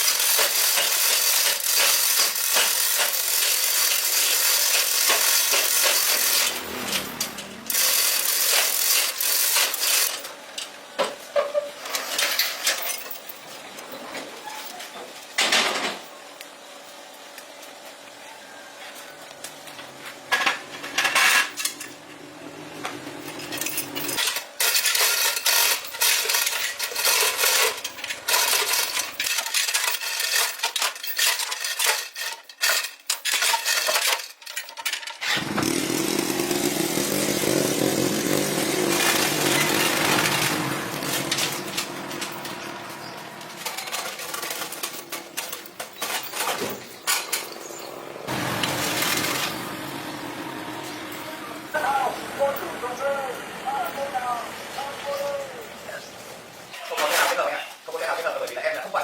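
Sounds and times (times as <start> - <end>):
tools scraping engine parts: 0.0 - 16.0, 19.9 - 22.1, 22.8 - 50.2.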